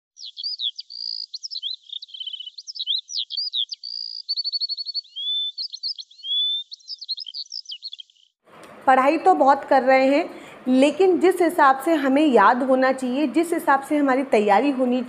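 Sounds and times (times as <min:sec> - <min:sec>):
songbird singing: 0:00.2 - 0:08.4.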